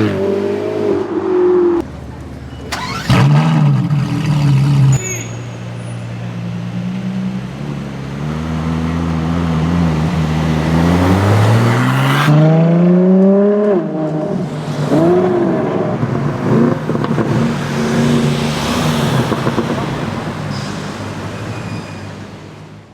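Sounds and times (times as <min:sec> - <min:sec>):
sports car engine accelerating: 0:06.4 - 0:19.9.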